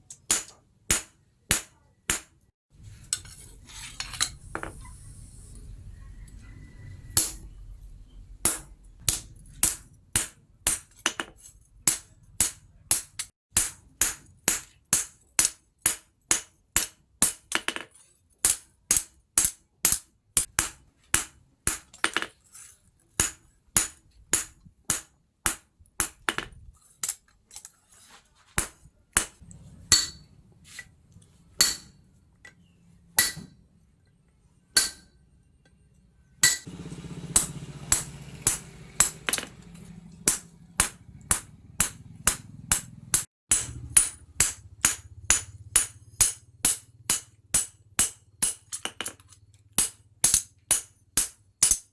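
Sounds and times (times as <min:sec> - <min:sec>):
hammer striking steel on anvil: 0:00.0 - 0:02.4, 0:07.2 - 0:07.6, 0:08.4 - 0:17.8, 0:18.4 - 0:22.3, 0:23.2 - 0:26.2, 0:28.6 - 0:30.3, 0:31.6 - 0:32.0, 0:33.2 - 0:33.6, 0:34.8 - 0:35.2, 0:36.4 - 0:36.7, 0:37.3 - 0:49.2, 0:49.8 - 0:51.9.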